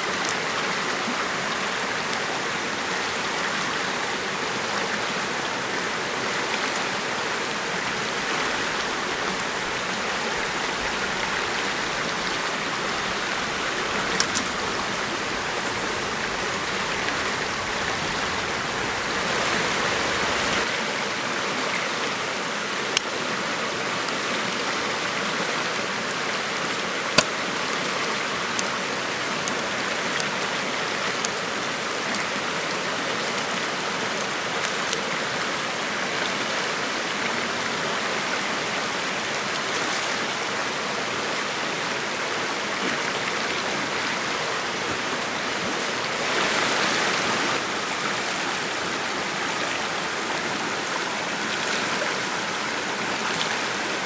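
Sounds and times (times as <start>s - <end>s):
flowing water rushing: 0.0s - 54.0s.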